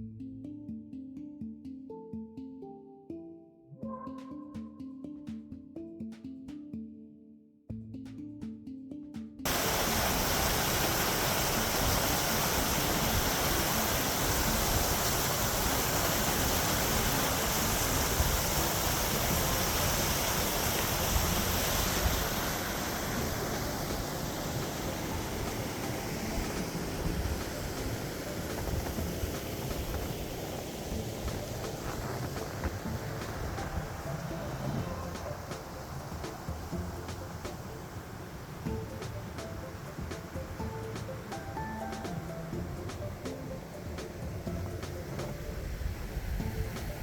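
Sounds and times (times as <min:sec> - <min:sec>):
music: 0:00.0 - 0:47.0
fast-flowing water rushing: 0:09.5 - 0:47.0.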